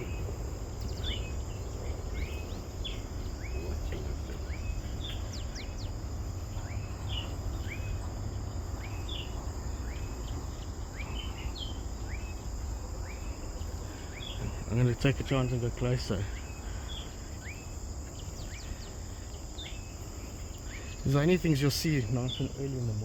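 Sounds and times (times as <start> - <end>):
low steady rumble: 0.0 - 15.0
birds chirping: 0.0 - 23.0
insect drone: 0.0 - 23.0.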